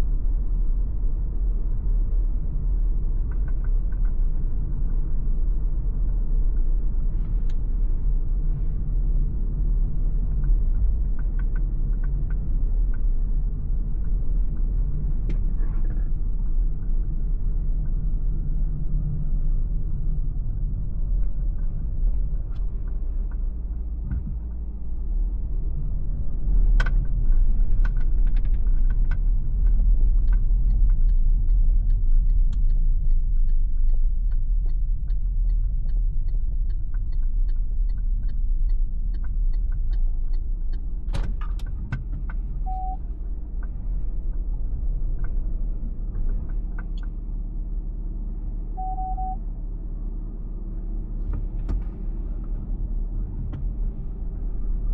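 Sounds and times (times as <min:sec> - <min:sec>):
road and drivetrain rumble: 0:00.0 - 0:54.9
short beeps: 0:42.6 - 0:43.0, 0:48.8 - 0:49.4.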